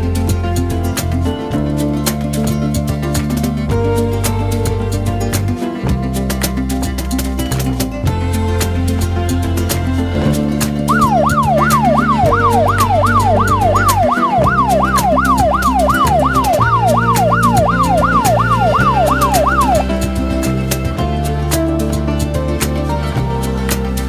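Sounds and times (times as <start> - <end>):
music with steady beat: 0.0 - 24.0
electronic siren wailing: 10.9 - 19.9.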